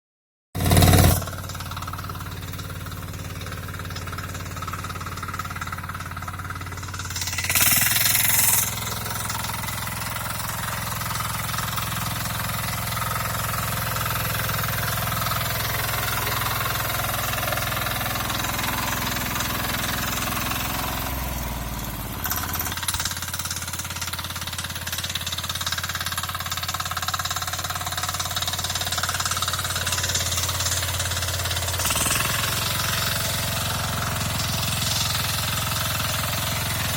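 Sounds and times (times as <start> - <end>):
cultivator engine running: 0.6 - 36.9.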